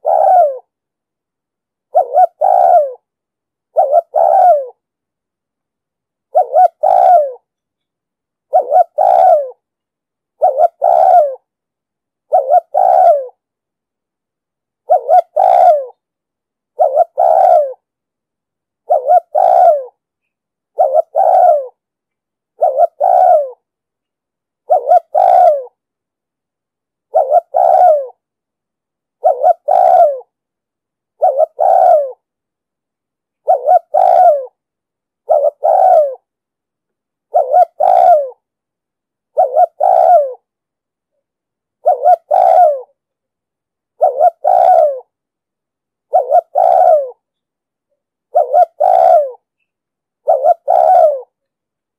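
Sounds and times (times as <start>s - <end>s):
dove cooing: 0.0s - 0.7s, 1.9s - 3.1s, 3.7s - 4.8s, 6.3s - 7.5s, 8.5s - 9.6s, 10.4s - 11.5s, 12.3s - 13.4s, 14.8s - 16.0s, 16.8s - 17.9s, 18.8s - 20.0s, 20.7s - 21.8s, 22.6s - 23.6s, 24.6s - 25.8s, 27.1s - 28.2s, 29.2s - 30.4s, 31.2s - 32.3s, 33.4s - 34.6s, 35.2s - 36.3s, 37.3s - 38.4s, 39.3s - 40.5s, 41.8s - 43.0s, 44.0s - 45.1s, 46.1s - 47.2s, 48.3s - 49.5s, 50.2s - 51.4s.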